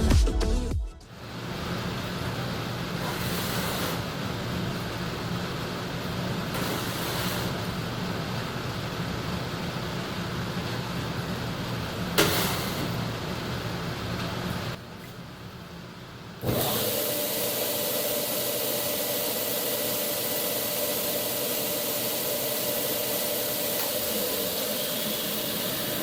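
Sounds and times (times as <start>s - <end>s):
hiss of spinning belt: 2.9s - 4.3s, 6.5s - 7.8s.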